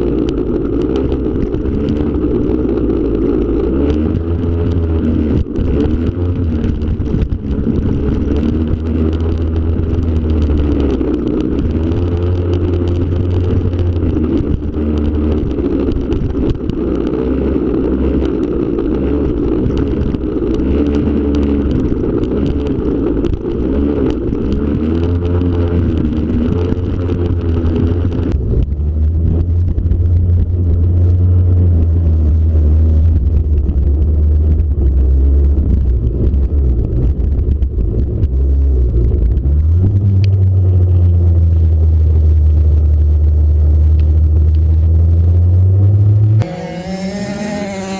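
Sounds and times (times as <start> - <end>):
small two-stroke engine revving: 46.1 - 47.9.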